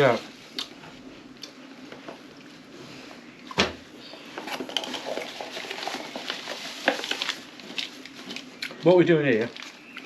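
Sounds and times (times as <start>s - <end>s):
hard objects clinking and rattling: 4.3s - 8.5s.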